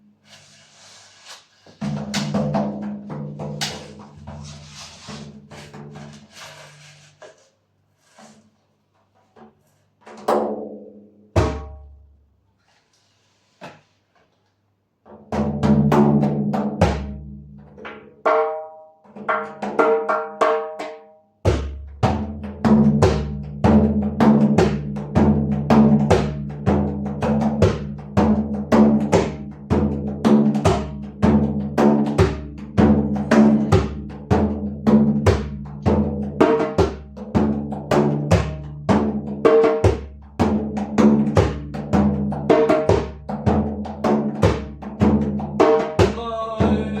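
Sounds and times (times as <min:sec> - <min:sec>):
hand drum strikes: 0:01.8 - 0:04.5, 0:11.4 - 0:12.0, 0:15.3 - 0:47.0.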